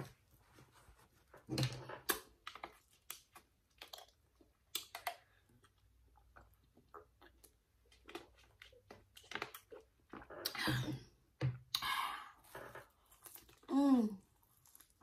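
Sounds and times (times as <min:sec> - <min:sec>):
chewing with wet mouth smacks: 0:01.6 - 0:10.6.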